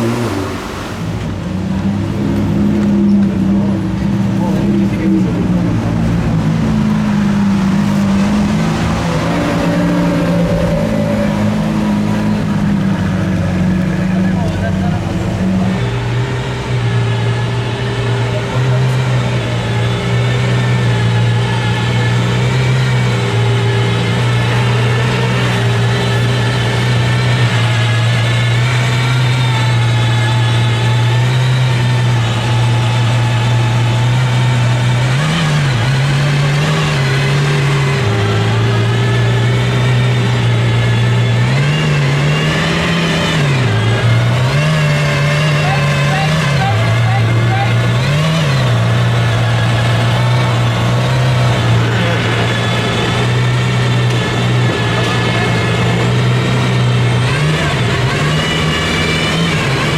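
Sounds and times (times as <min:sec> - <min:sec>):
background voices: 0:00.0 - 0:16.3, 0:43.5 - 0:58.1
car engine running: 0:00.0 - 0:59.9.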